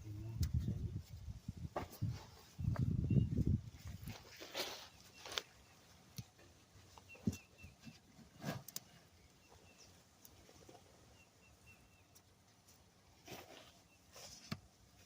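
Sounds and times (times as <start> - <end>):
small bird chirping: 2.4 - 4.1, 6.9 - 8.0, 9.2 - 12.3
hands digging through soil: 3.8 - 6.4.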